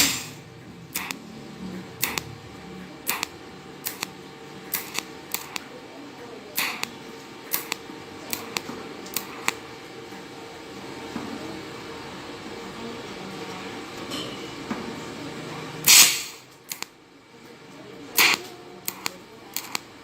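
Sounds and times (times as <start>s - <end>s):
welding arc bursts: 0.0s - 2.4s, 3.0s - 5.7s, 6.5s - 9.7s, 15.8s - 17.0s, 18.1s - 20.0s.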